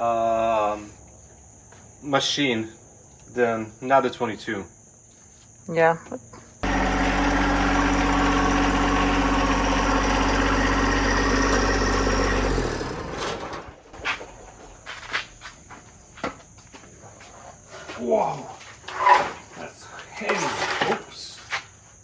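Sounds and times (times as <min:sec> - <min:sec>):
bandsaw sawmill running: 0:06.6 - 0:14.6.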